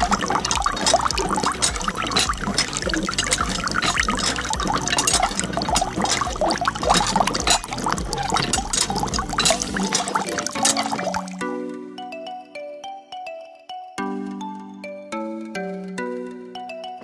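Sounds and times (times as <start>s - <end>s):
water trickling and splashing: 0.0s - 11.4s.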